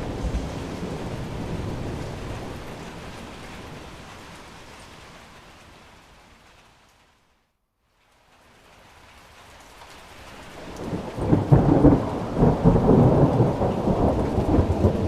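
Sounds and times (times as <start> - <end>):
thunder rumbling: 0.0 - 4.3, 10.6 - 15.0
rain falling: 0.0 - 15.0.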